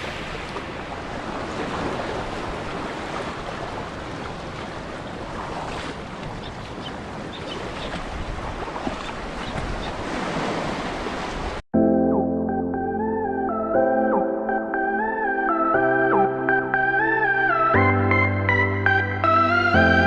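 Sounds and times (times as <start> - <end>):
wind on microphone: 0.0 - 10.4
moving sea water: 0.0 - 11.6.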